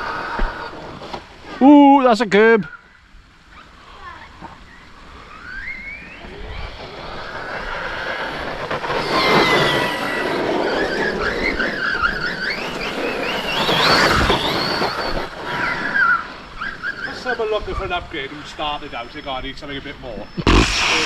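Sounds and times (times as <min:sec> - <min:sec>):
rough rushing noise: 0:06.4 - 0:15.8, 0:20.4 - 0:21.0
electric motor whining: 0:08.9 - 0:15.4.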